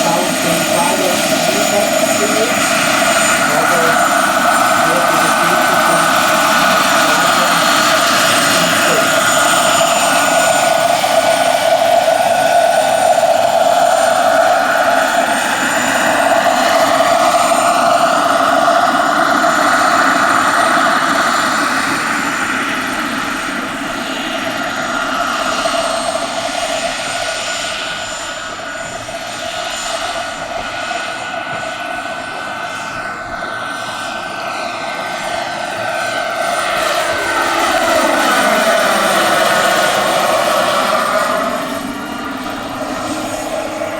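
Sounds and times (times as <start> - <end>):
model helicopter rotor whine: 0.0 - 43.9.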